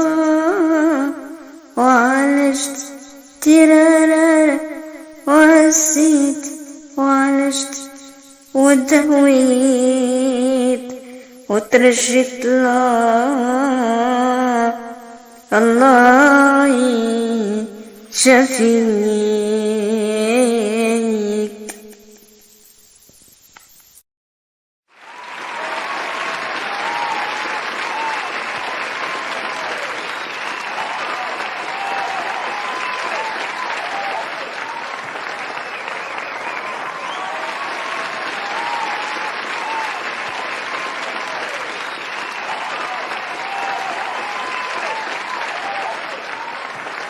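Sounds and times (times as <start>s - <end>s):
crowd applauding: 24.9s - 47.0s
people shouting: 25.1s - 35.3s, 36.4s - 41.7s, 42.4s - 46.7s.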